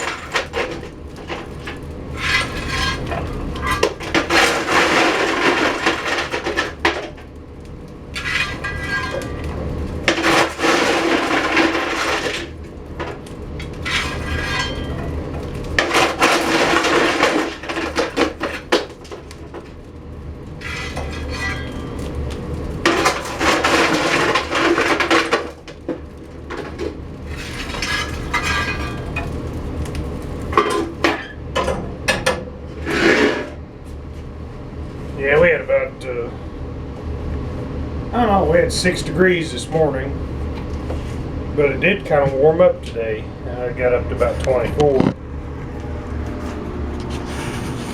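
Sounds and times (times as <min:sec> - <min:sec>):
coal lumps clattering: 0:00.0 - 0:31.4, 0:32.8 - 0:33.6
metal scraping: 0:02.1 - 0:06.8, 0:08.2 - 0:12.6, 0:13.6 - 0:15.2, 0:20.6 - 0:22.1, 0:26.6 - 0:29.2, 0:32.8 - 0:33.6, 0:46.2 - 0:47.9.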